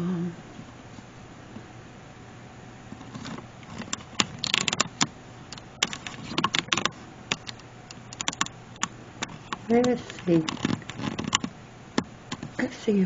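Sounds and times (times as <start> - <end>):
low steady hum: 0.0 - 13.0
paper and cardboard handling clicks: 3.0 - 11.5.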